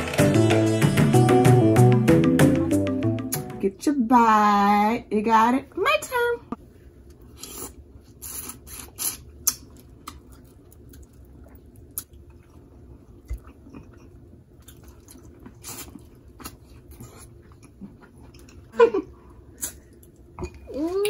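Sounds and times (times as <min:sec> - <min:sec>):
chewing and mouth smacking: 0:07.4 - 0:18.7.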